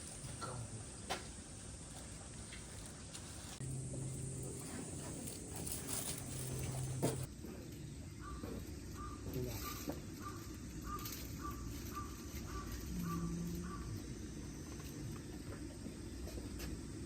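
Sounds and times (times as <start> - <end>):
low outdoor rumble: 0.0 - 17.0
bird calling: 8.1 - 14.3.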